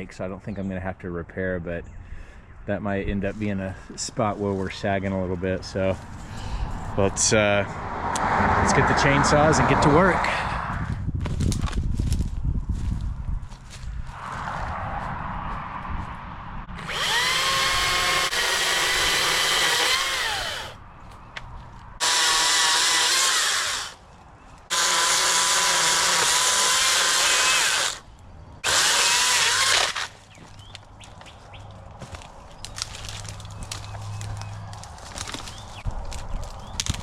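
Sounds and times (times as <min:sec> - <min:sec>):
chainsaw cutting wood: 0:16.8 - 0:20.8, 0:22.0 - 0:24.0, 0:24.7 - 0:28.0, 0:28.6 - 0:30.2.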